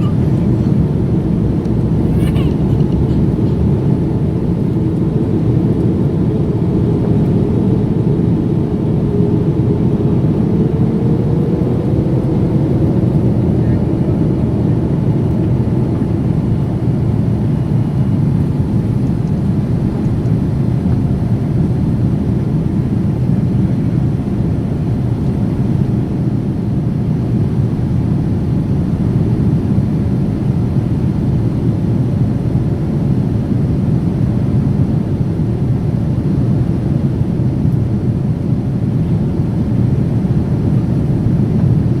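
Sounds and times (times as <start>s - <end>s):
jet engines droning: 0.0s - 42.0s.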